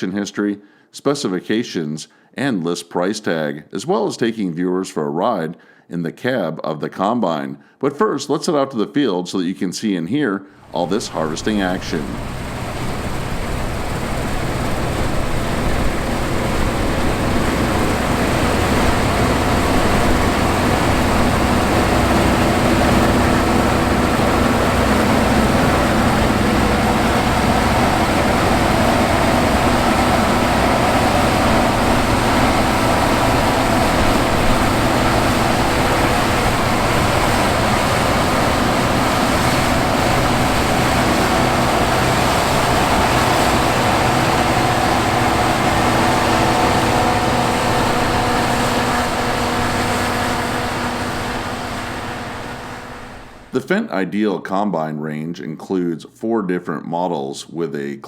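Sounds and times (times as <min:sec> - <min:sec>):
combine harvester engine droning: 0:10.6 - 0:53.5
threshing machinery: 0:10.6 - 0:53.5.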